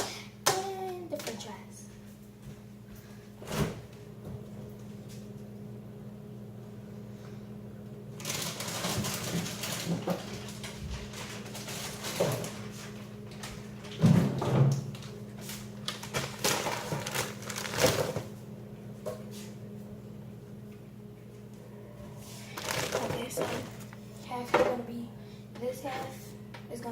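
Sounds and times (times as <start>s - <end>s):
plastic packaging crinkling: 8.2s - 14.0s, 15.8s - 18.2s, 22.5s - 23.9s.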